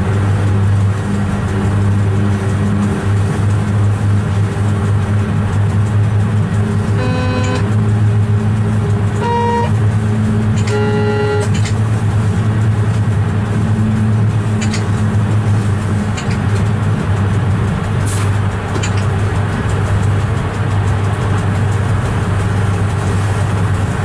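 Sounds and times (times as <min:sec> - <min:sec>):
locomotive cab hum: 0:00.0 - 0:24.0
train horn blasts: 0:06.9 - 0:07.8, 0:09.1 - 0:09.9, 0:10.6 - 0:11.6.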